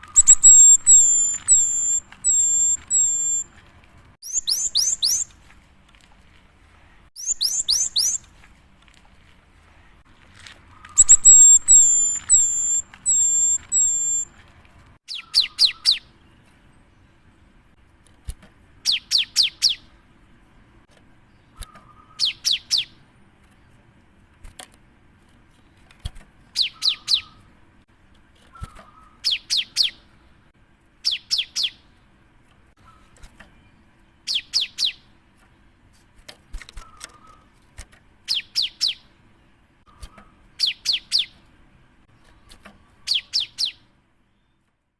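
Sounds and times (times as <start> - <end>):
bird singing high whistled notes: 0.0 - 3.5, 4.2 - 5.3, 7.2 - 8.3, 10.9 - 14.3, 15.1 - 16.1, 18.9 - 19.8, 21.5 - 22.9, 26.6 - 27.4, 31.0 - 31.8, 34.3 - 35.0, 40.6 - 41.3, 43.1 - 44.6
rapid high bird notes: 0.0 - 3.5, 4.2 - 5.4, 7.2 - 8.3, 10.7 - 14.4.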